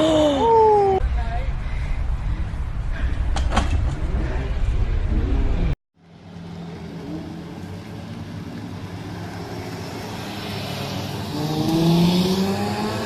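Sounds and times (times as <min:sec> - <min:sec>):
car engine accelerating: 0:06.7 - 0:13.0.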